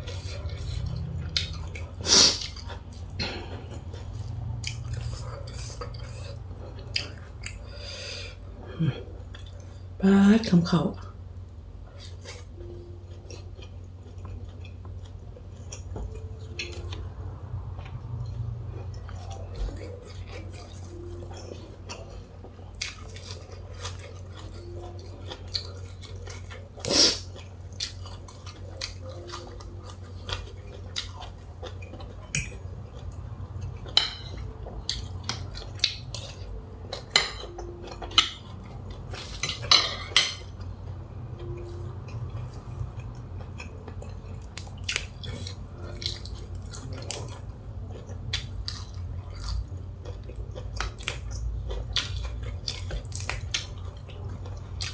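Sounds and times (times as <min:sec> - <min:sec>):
person chewing: 0:00.0 - 0:10.0, 0:11.8 - 0:54.9
steady low hum: 0:00.0 - 0:54.9
utensils clinking on plate: 0:37.0 - 0:38.5, 0:39.1 - 0:40.6.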